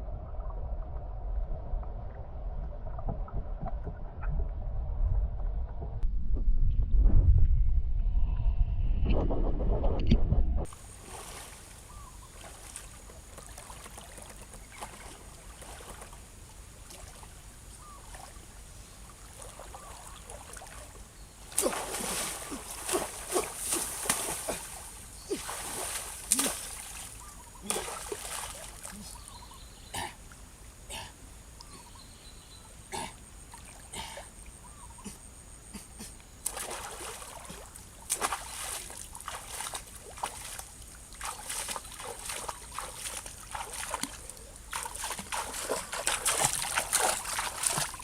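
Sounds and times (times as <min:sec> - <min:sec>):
water splashing and sloshing: 0:10.6 - 0:29.4, 0:36.4 - 0:48.0.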